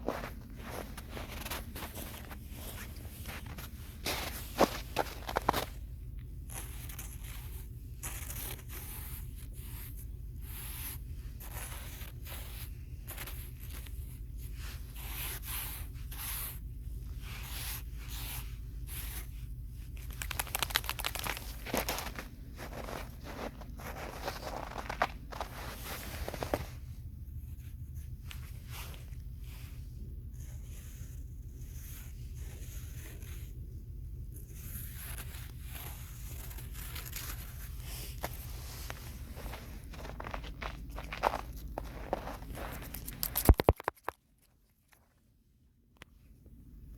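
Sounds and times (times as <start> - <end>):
scraping crunching strokes: 0.0 - 27.0, 34.4 - 44.0
steady low hum: 0.0 - 46.9.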